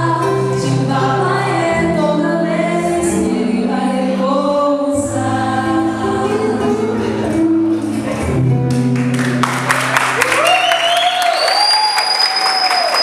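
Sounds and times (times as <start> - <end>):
audience applause and cheering: 8.0 - 13.0.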